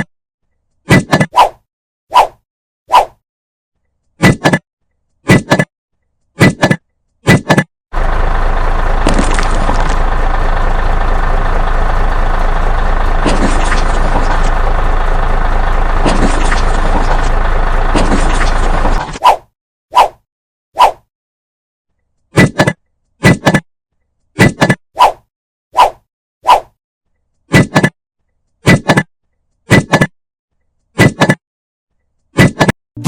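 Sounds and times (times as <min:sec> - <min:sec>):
engine-like running sound: 0:07.9 - 0:19.2.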